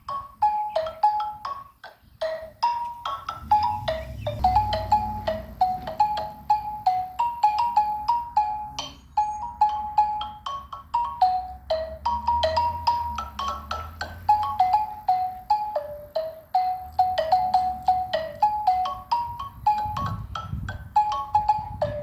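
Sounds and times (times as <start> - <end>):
xylophone melody: 0.0 - 22.0.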